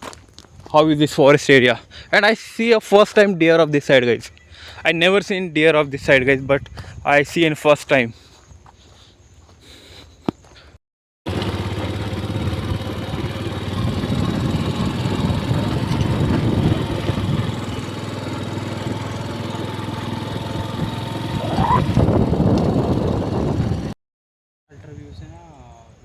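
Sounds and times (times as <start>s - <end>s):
motorcycle engine running: 11.3s - 24.0s.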